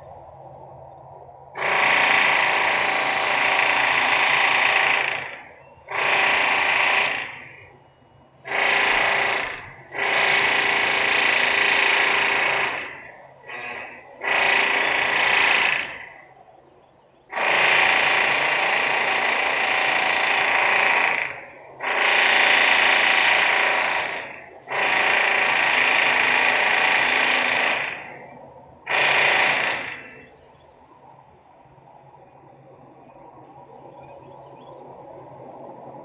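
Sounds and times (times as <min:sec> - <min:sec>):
buzzing machine whine: 0:00.0 - 0:36.0.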